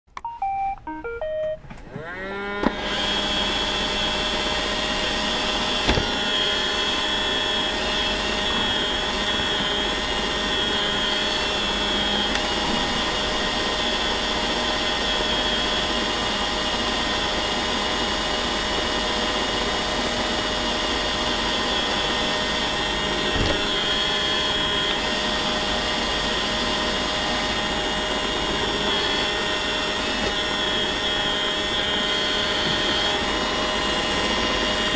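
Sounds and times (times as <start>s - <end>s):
robot vacuum whirring: 1.8s - 34.9s
robot vacuum motors spinning up: 1.9s - 34.9s.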